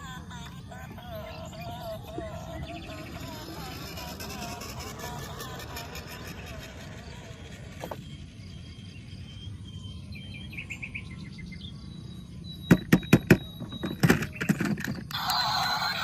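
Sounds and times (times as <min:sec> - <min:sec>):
sharp clicks or knocks: 0:12.7 - 0:15.2.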